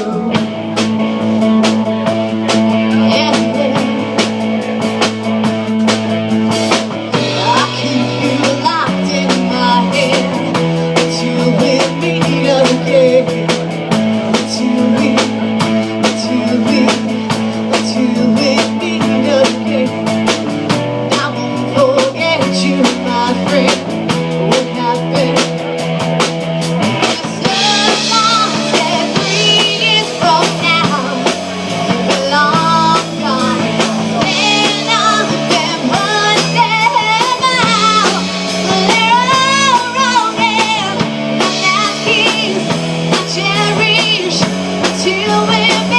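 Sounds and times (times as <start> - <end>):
bending lead guitar line: 0.0 - 45.9
rock band playing live: 0.0 - 45.9.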